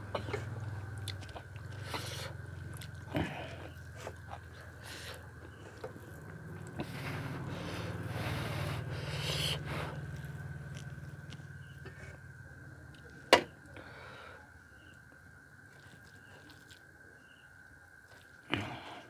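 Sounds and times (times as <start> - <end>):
chewing and lip-smacking: 0.4 - 13.2, 15.7 - 16.9.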